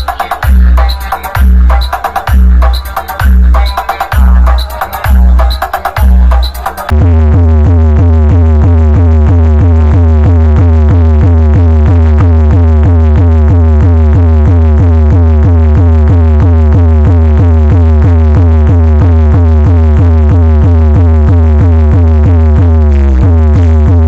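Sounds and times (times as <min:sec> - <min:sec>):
electronic dance music with heavy bass: 0:00.0 - 0:24.0.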